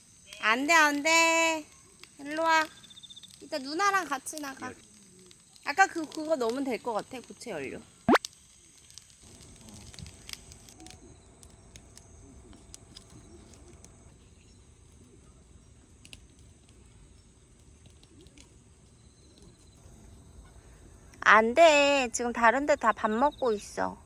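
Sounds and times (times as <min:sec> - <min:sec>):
insects chirring: 0:00.0 - 0:24.0
small clicks: 0:00.2 - 0:07.5, 0:08.1 - 0:19.8.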